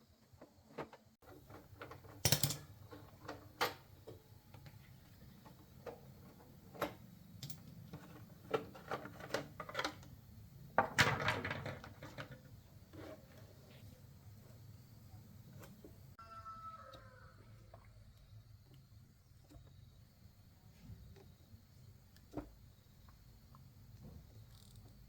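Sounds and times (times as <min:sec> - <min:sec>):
metal tools clinking: 0:01.8 - 0:03.8, 0:07.3 - 0:09.1.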